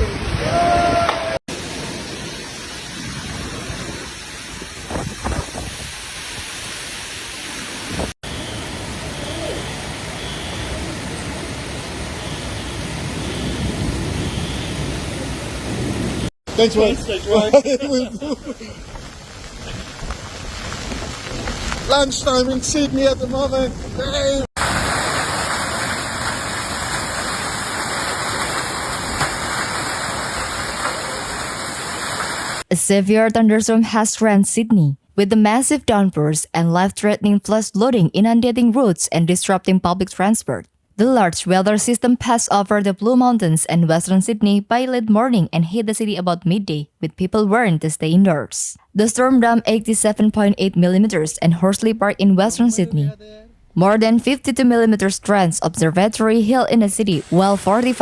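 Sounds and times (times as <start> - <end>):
heavy rain: 0.0 - 32.7, 57.2 - 58.0
storm water rushing: 0.0 - 32.7.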